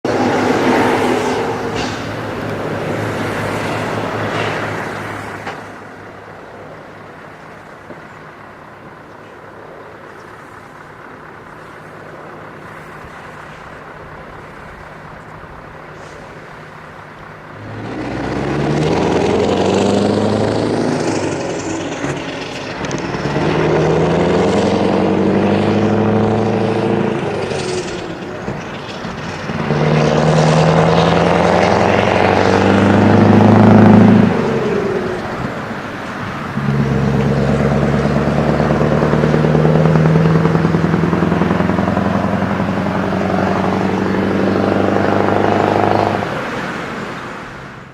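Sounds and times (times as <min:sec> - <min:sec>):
truck revving through gears: 0:00.0 - 0:07.2, 0:10.8 - 0:47.9
diesel truck engine idling: 0:00.0 - 0:18.2.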